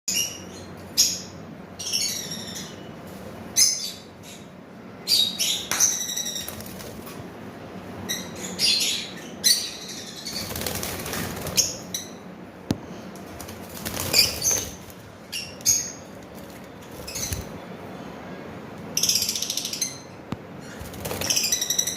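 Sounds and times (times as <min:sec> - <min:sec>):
parrots chirping: 0:00.1 - 0:02.9, 0:03.5 - 0:06.8, 0:08.0 - 0:12.3, 0:14.0 - 0:17.6, 0:18.9 - 0:21.9.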